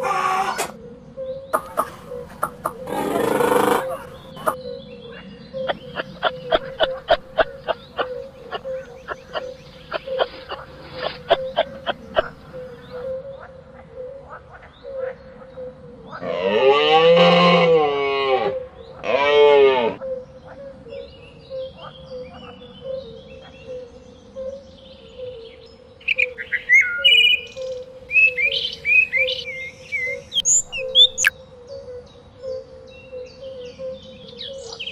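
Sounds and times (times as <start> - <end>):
songbird chirping and whistling: 1.2 - 5.0, 5.6 - 13.2, 26.1 - 31.4.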